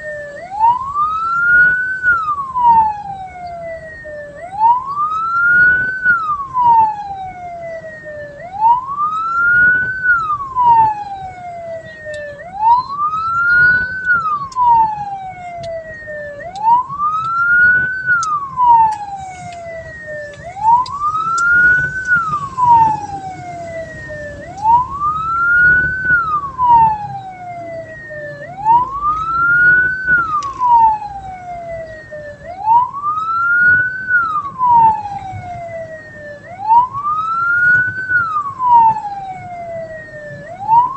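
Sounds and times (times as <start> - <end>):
faint road noise: 0.0 - 40.9
vehicle siren wailing: 0.0 - 40.9.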